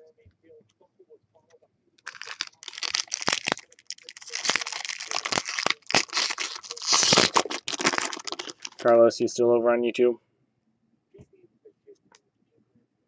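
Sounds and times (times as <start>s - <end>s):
foil wrapper crinkling: 2.0s - 9.0s.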